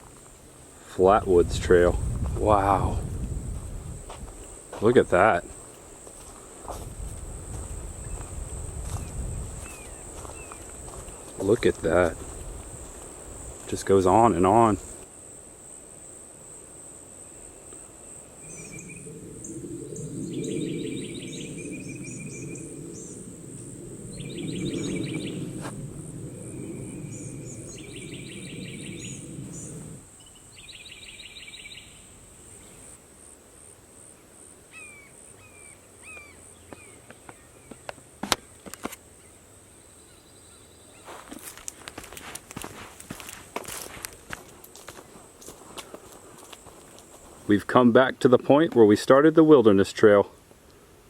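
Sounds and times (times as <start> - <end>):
insects droning: 0.0 - 51.0
low rushing noise: 1.0 - 5.6, 18.3 - 30.1
bird chirps: 18.4 - 25.6, 26.2 - 32.8
bird trilling: 18.4 - 30.0.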